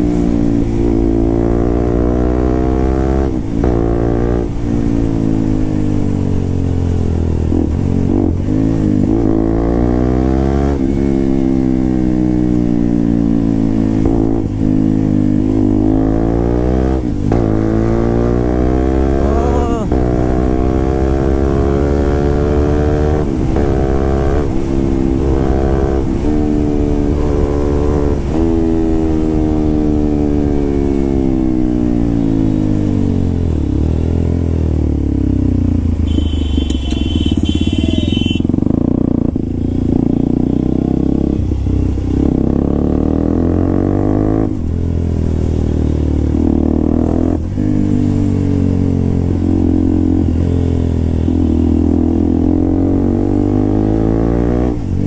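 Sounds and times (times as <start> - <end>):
motorcycle revving: 0.0 - 55.0
high steady tone: 36.0 - 38.5.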